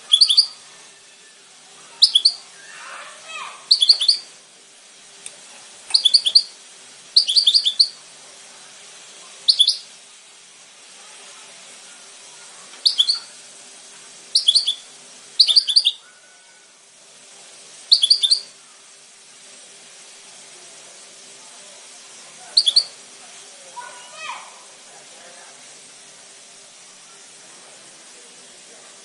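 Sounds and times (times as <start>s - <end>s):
bird twittering song: 0.0s - 0.6s, 2.0s - 2.4s, 3.6s - 4.3s, 5.9s - 6.6s, 7.2s - 8.0s, 9.4s - 9.9s, 12.8s - 13.3s, 14.3s - 16.0s, 17.9s - 18.5s, 22.6s - 23.0s
faint steady hum: 0.0s - 29.0s.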